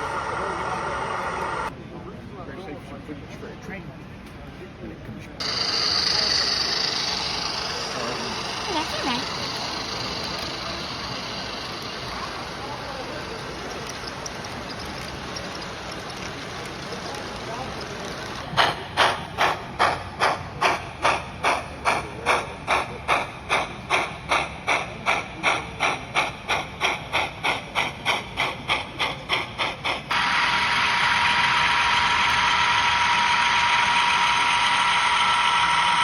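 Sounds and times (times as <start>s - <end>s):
model steam locomotive chuffing: 0.0s - 1.7s, 5.4s - 36.0s
loud steam hiss with held tone: 5.4s - 20.0s.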